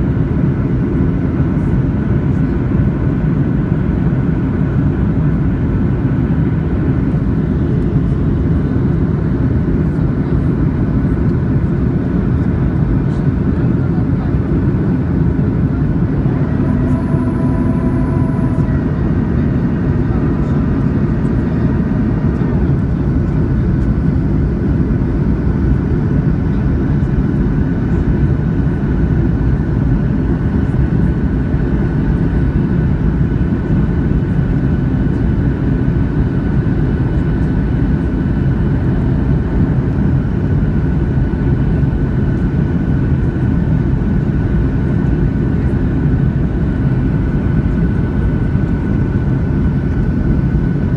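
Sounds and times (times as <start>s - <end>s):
jet engine and airflow rush: 0.0s - 50.9s
thin steady whine: 12.5s - 28.4s
faint brief tones: 16.1s - 20.5s.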